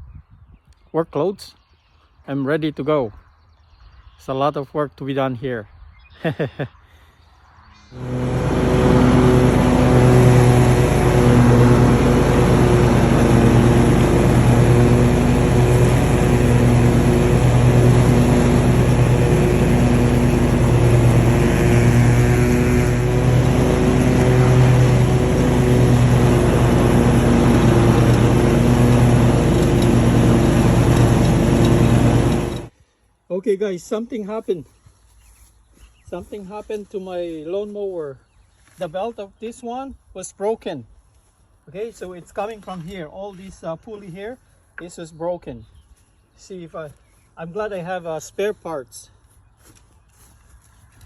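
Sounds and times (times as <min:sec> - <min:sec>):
lawnmower engine running: 0:07.9 - 0:32.7.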